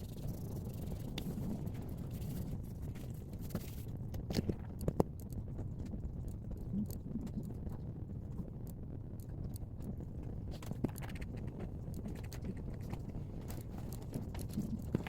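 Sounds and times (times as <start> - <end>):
steady low rumble: 0.0 - 15.0
light clicks and taps: 2.5 - 7.8.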